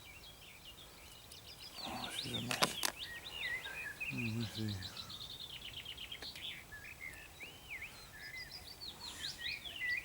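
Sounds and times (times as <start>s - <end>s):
birdsong: 0.0s - 10.0s.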